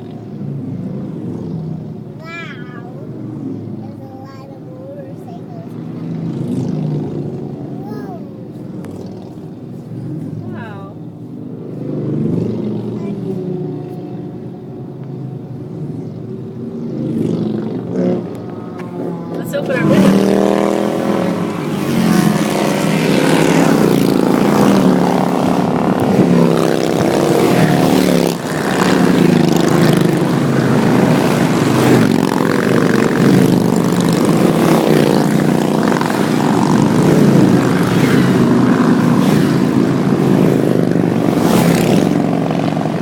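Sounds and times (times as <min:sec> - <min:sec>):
motorcycles riding past: 0:00.0 - 0:43.0.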